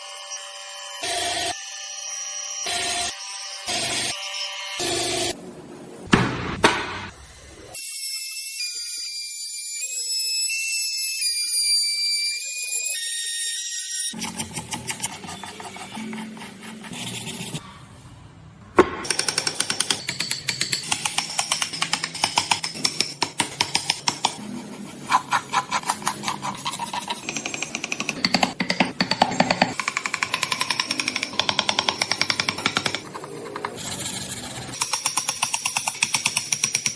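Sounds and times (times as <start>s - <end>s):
tool strikes on wood: 27.2s - 33.0s.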